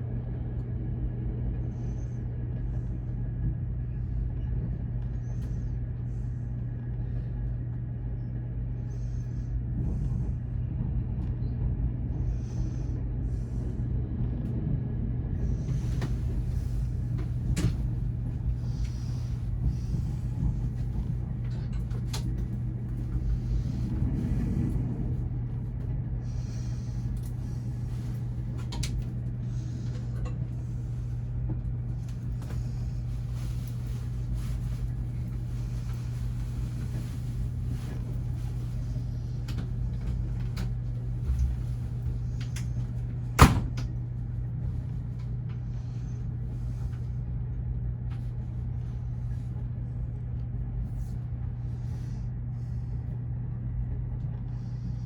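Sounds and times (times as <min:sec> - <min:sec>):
train car rumble and hum: 0:00.0 - 0:55.0
light rattles and clicks: 0:15.7 - 0:24.9, 0:27.0 - 0:38.8.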